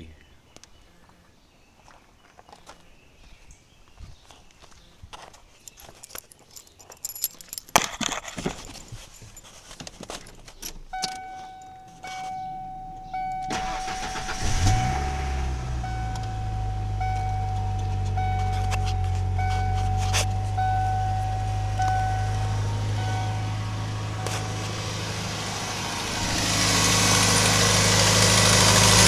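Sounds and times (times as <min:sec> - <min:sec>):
keys jangling: 0:05.5 - 0:13.5, 0:15.8 - 0:25.4
car engine cranking and idling: 0:07.0 - 0:29.0
car warning chime: 0:10.8 - 0:29.0.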